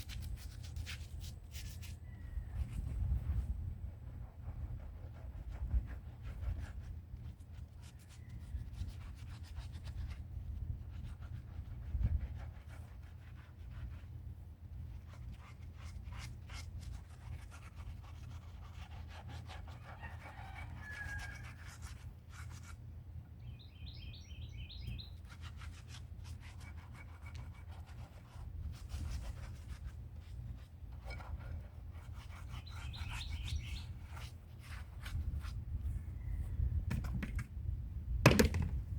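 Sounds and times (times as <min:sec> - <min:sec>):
bird chirping: 0:23.4 - 0:25.2, 0:32.5 - 0:33.9.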